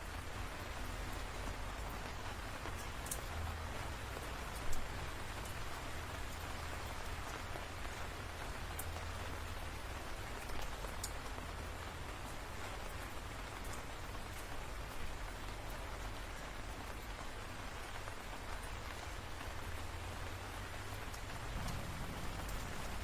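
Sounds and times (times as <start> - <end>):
sharp raindrops: 0.0 - 23.0
steady rain: 0.0 - 23.0.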